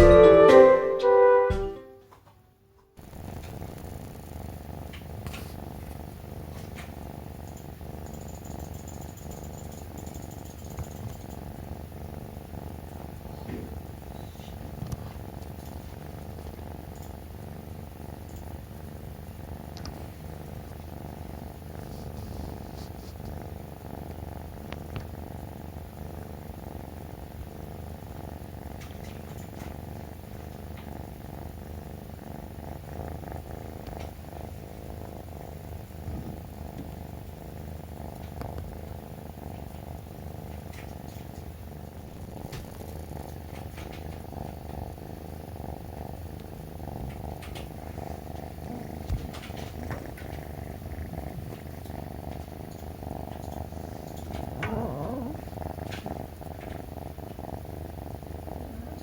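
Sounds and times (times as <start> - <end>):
short rising-and-falling pitched sound: 0.0 - 2.0
kitten purring: 3.0 - 59.0.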